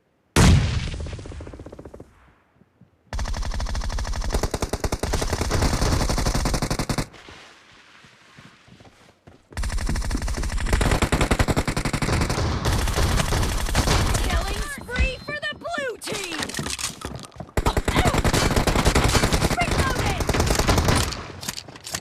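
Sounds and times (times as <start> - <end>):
video game automatic gunfire: 3.1 - 7.1, 9.6 - 15.2, 17.6 - 21.4.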